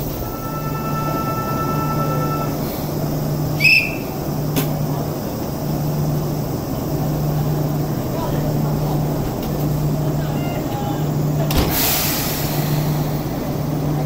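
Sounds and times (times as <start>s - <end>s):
electric train low hum: 0.0s - 14.0s
high-pitched tone: 0.2s - 2.7s
sharp high chirp: 3.6s - 4.1s.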